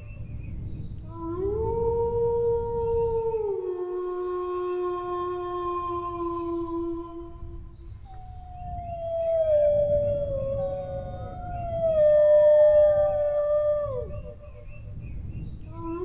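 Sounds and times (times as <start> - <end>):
dogs howling: 8.0 - 14.8.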